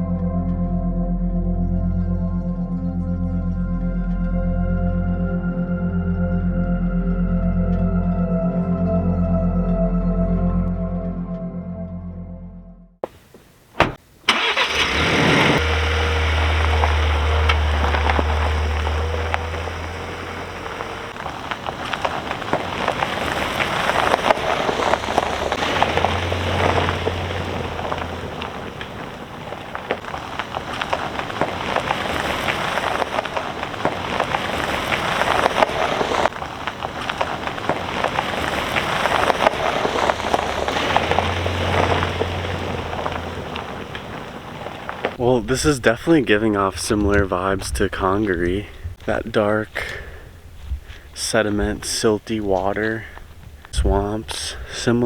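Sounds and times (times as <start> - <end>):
low rumble: 0.0 - 13.0, 15.5 - 51.8
tyres crunching over gravel: 13.0 - 55.0.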